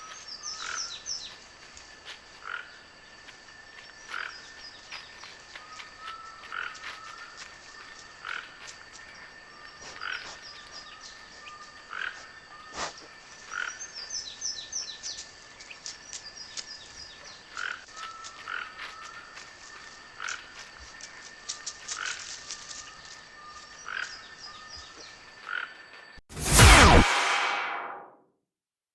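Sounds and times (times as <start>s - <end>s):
frogs calling: 2.3s - 14.9s, 17.1s - 25.9s
steady high tone: 26.3s - 28.1s.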